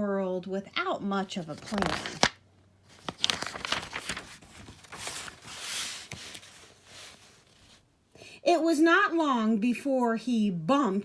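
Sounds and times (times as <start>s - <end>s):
book page turning: 1.4s - 7.8s.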